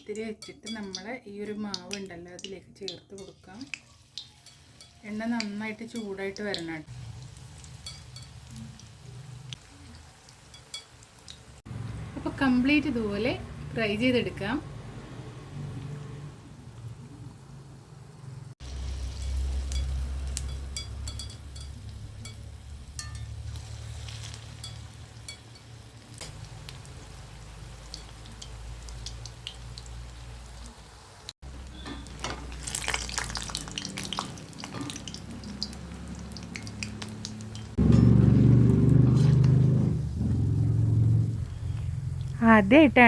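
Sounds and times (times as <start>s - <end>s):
batter deep-frying in oil: 0.0s - 43.0s
low hum: 37.5s - 43.0s.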